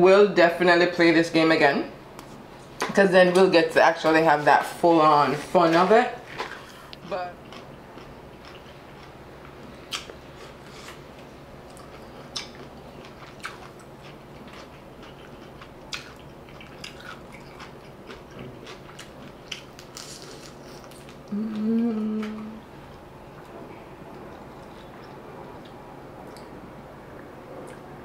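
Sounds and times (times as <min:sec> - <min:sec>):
soft crunches of chewing: 0:06.3 - 0:21.6, 0:22.2 - 0:27.9
person humming: 0:21.3 - 0:22.7.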